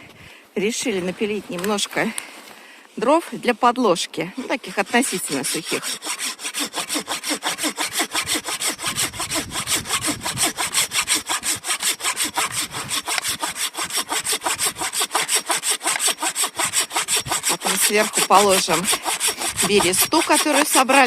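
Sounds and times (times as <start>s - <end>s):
hand saw cutting wood: 4.4s - 21.0s.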